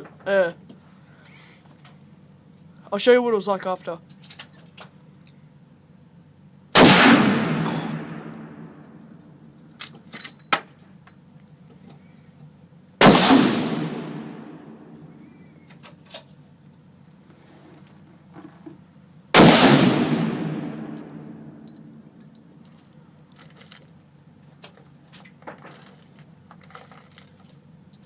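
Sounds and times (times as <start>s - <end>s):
rifle shot: 6.8s - 8.9s, 13.0s - 15.1s, 19.3s - 21.7s
light clicks and clinks: 20.9s - 28.0s.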